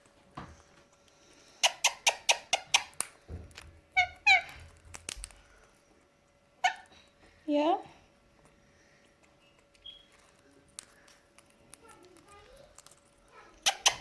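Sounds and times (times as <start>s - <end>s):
parrot squawks: 4.0s - 4.6s, 6.6s - 6.9s, 13.6s - 14.0s.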